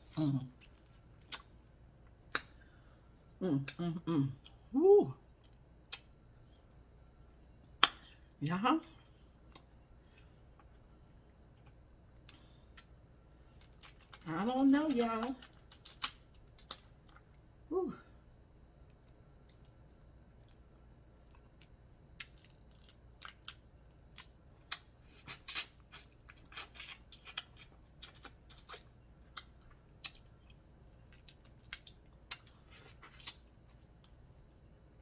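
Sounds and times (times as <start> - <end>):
crab shells cracking: 13.5 - 17.2, 21.6 - 28.8, 31.1 - 33.4.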